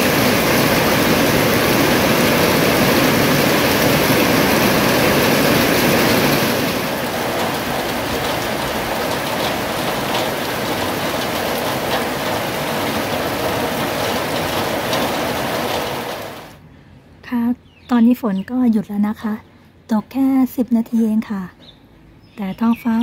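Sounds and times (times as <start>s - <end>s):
rain drop ticks: 0.0s - 16.6s
steady rain falling: 0.0s - 16.6s.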